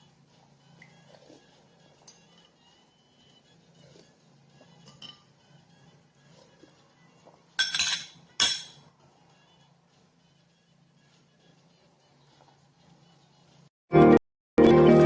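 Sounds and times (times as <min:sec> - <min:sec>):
kitchenware clinking: 0:07.6 - 0:08.8.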